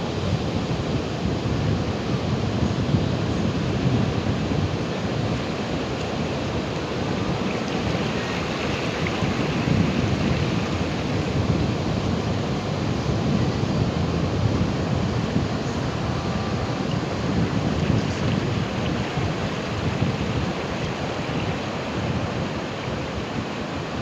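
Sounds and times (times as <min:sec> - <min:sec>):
wind on microphone: 0:00.0 - 0:24.0
ocean waves breaking: 0:03.6 - 0:13.3, 0:15.9 - 0:24.0.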